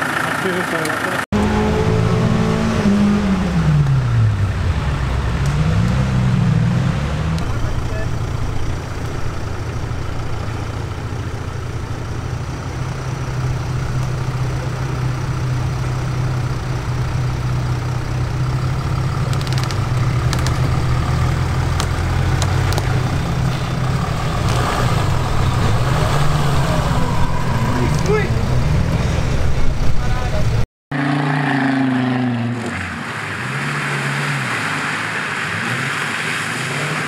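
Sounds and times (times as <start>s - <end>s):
engine running at low revs: 0.0s - 34.2s
sharp clicks: 19.2s - 20.8s.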